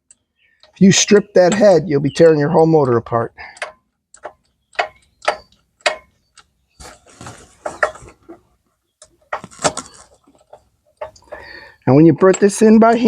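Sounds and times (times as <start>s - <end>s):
metallic clicks and rattling: 2.8s - 6.6s, 7.6s - 11.5s, 12.2s - 13.0s.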